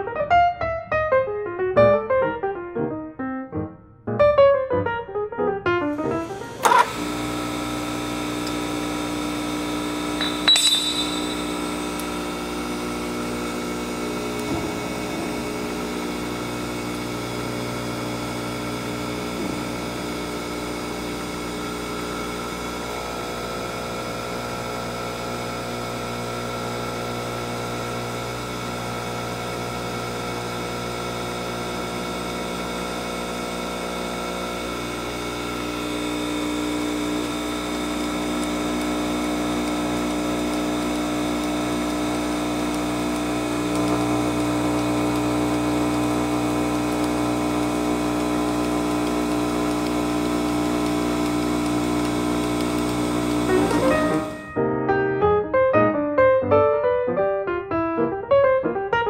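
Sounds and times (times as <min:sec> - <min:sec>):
surface grinder motor humming: 0:05.9 - 0:54.5
sharp metallic clink: 0:10.2 - 0:11.8.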